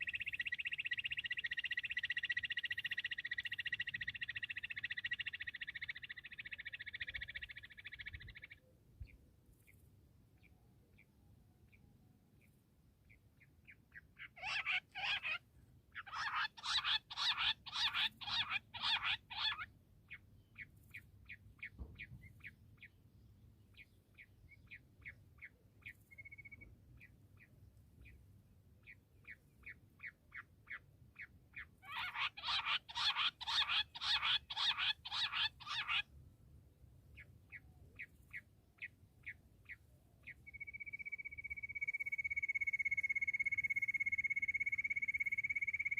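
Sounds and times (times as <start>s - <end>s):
quail calling: 13.9s - 19.7s, 30.0s - 36.1s.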